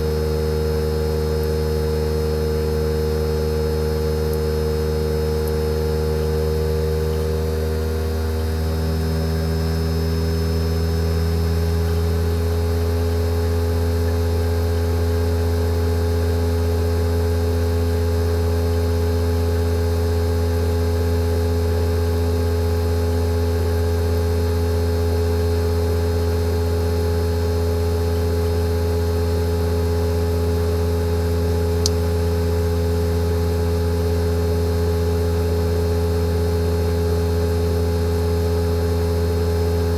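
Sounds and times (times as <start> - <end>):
air conditioner compressor humming: 0.0 - 39.9
small tick: 31.8 - 32.1.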